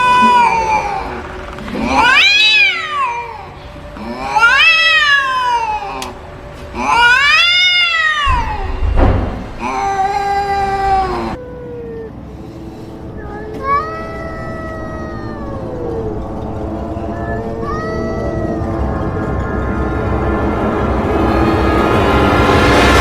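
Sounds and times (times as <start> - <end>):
cat meowing: 0.0 - 6.2, 6.8 - 8.8, 17.2 - 18.6.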